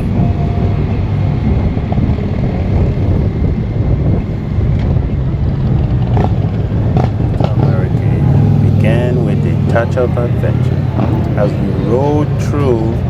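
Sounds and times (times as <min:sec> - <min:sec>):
wind on microphone: 0:00.0 - 0:13.0
motorcycle engine running: 0:06.0 - 0:13.0.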